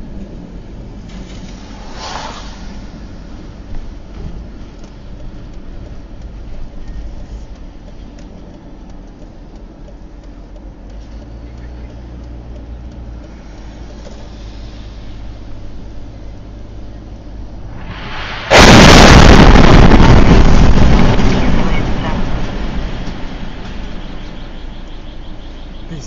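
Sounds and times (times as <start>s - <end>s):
car engine and road rumble: 0.0s - 26.0s
brief hissing whoosh: 1.1s - 3.2s, 17.7s - 18.8s.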